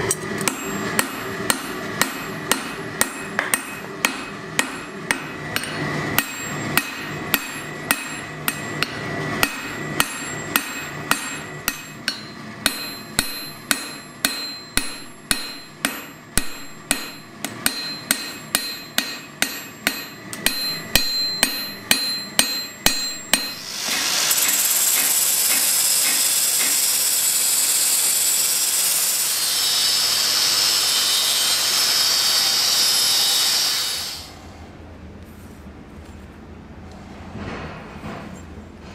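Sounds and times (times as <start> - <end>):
hammer striking steel on anvil: 0.0 - 26.8
angle grinder grinding steel: 5.6 - 34.3.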